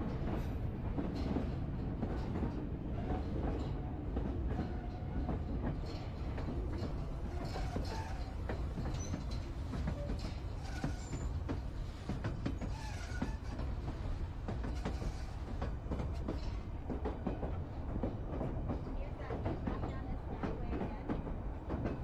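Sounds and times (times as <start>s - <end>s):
train rumbling on rails: 0.0s - 22.0s
faint wheel squeals: 12.6s - 13.6s.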